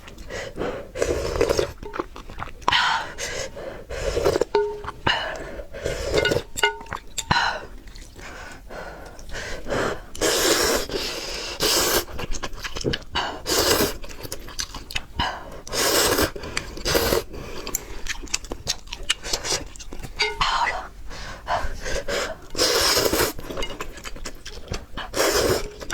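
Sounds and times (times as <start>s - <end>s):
loud noodle slurping: 1.0s - 6.5s, 9.8s - 12.4s, 13.2s - 14.2s, 15.7s - 17.3s, 22.0s - 23.6s, 25.1s - 25.9s
chewing and mouth clicks: 1.2s - 3.2s, 6.2s - 9.4s, 12.0s - 13.2s, 13.8s - 20.7s, 22.4s - 25.9s.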